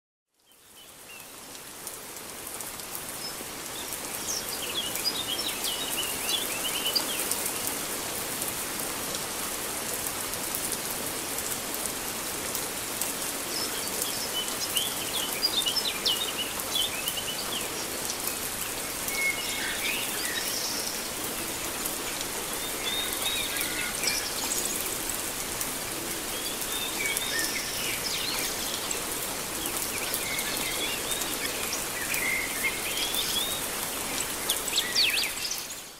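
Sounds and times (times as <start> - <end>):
heavy rain on paving and foliage: 0.3 - 35.9
birds chirping: 13.3 - 35.9.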